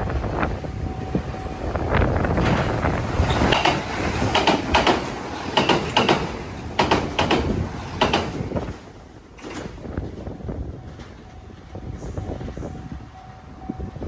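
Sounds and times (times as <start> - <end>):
train wheels clattering over rail joint: 1.4 - 10.4.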